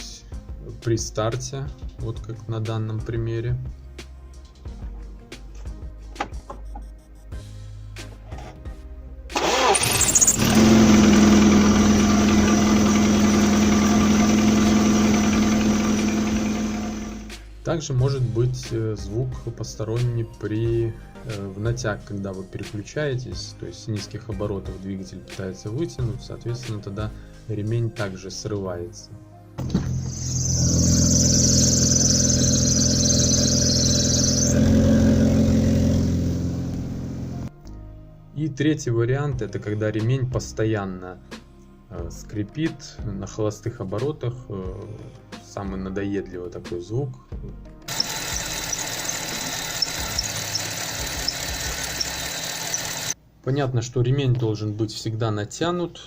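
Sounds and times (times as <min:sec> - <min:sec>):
belt squeal: 0:09.4 - 0:10.6, 0:29.8 - 0:35.3, 0:47.9 - 0:53.2
car engine cranking and starting: 0:09.4 - 0:17.4, 0:29.6 - 0:37.5, 0:47.9 - 0:53.2
car engine idling: 0:09.4 - 0:17.4, 0:29.9 - 0:37.5, 0:47.9 - 0:53.2.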